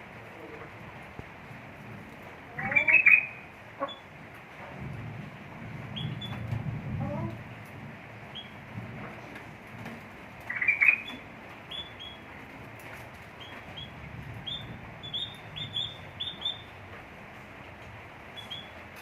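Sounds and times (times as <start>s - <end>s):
birds chirping: 2.6s - 4.1s, 5.9s - 6.4s, 8.3s - 8.6s, 10.4s - 12.5s, 13.3s - 16.8s, 18.3s - 18.9s.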